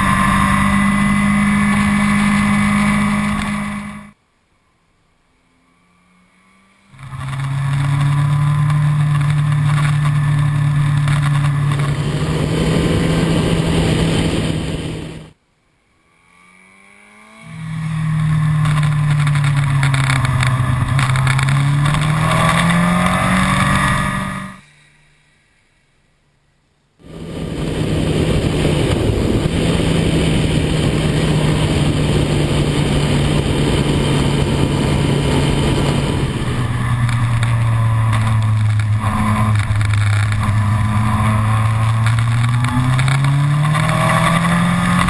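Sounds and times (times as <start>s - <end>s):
motorcycle engine droning: 0.0s - 25.5s, 26.3s - 45.0s
wind rush: 8.3s - 15.3s, 27.0s - 45.0s.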